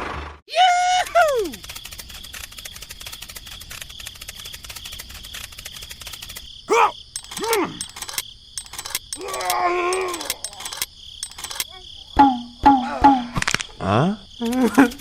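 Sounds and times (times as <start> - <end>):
wordless voice cries and moans: 0.5 - 1.6, 6.7 - 7.9, 9.2 - 10.7
insect chirring: 0.9 - 15.0
scattered clicks: 1.0 - 11.7.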